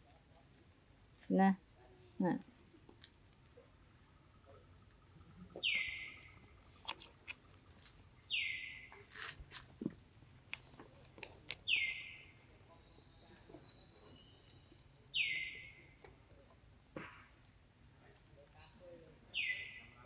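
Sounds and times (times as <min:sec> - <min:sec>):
small clicks and rustles: 0:08.9 - 0:11.6.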